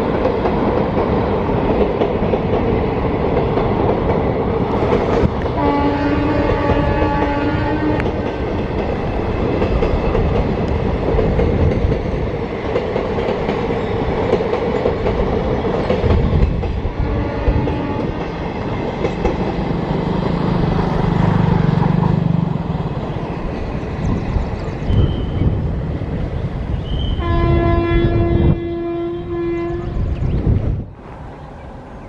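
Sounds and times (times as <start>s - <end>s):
train wheels rumbling over rails: 0.0s - 32.0s
train horn: 5.4s - 8.2s, 17.0s - 18.3s, 26.8s - 30.1s.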